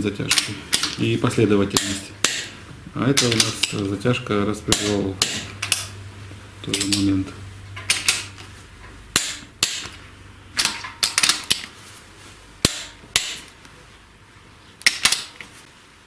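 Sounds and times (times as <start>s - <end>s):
torque wrench clicking: 4.7s - 7.1s, 7.7s - 8.5s, 9.1s - 10.0s, 12.6s - 13.5s.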